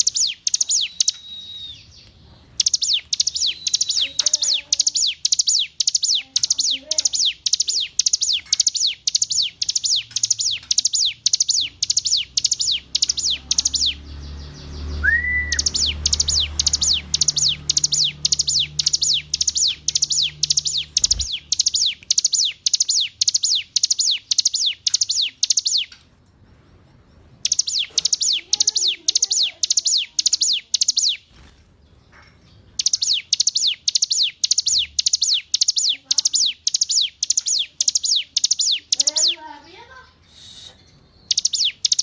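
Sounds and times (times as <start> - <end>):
bird singing high falling notes: 2.6 - 25.9.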